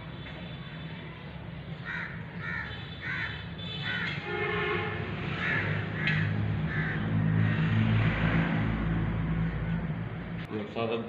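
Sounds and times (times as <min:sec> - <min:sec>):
crows cawing: 0:01.8 - 0:04.3, 0:05.3 - 0:07.9.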